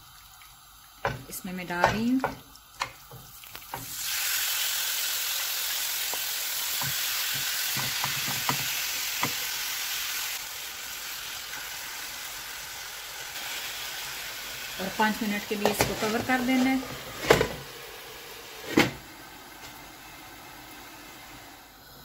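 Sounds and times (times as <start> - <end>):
chicken sizzling in a hot pan: 0.0 - 22.0
spatula knocking against pan: 1.0 - 3.2, 6.8 - 9.4.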